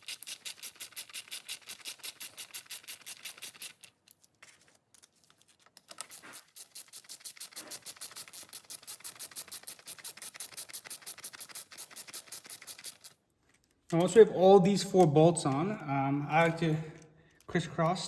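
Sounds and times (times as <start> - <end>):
ratchet wrench clicking: 0.0 - 3.8, 5.9 - 13.1.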